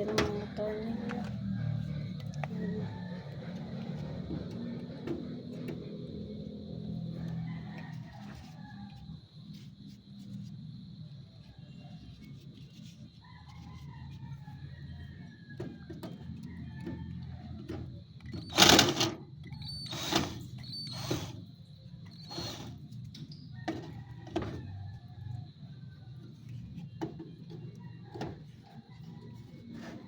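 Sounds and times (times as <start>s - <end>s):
tools and metal parts clicking: 18.2s - 21.4s.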